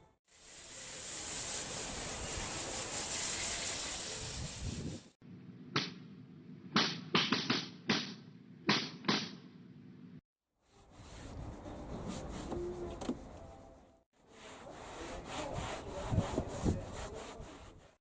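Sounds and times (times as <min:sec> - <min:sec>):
sharp scrubbing strokes: 0:00.3 - 0:05.2, 0:10.7 - 0:13.3, 0:14.2 - 0:18.0
spray hissing: 0:00.3 - 0:05.2.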